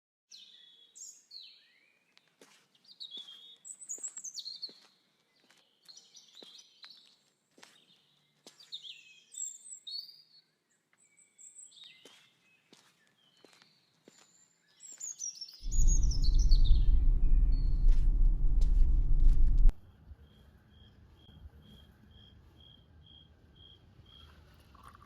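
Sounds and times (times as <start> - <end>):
small birds chirping: 0.3 - 19.7.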